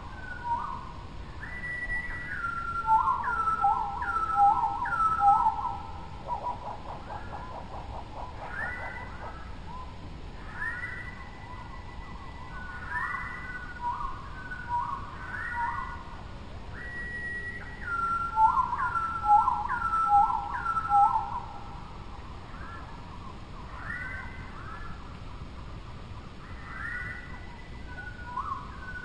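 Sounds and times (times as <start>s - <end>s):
bird whistling: 1.4s - 6.6s, 10.4s - 16.0s, 16.7s - 21.6s, 23.7s - 24.9s, 26.5s - 29.0s.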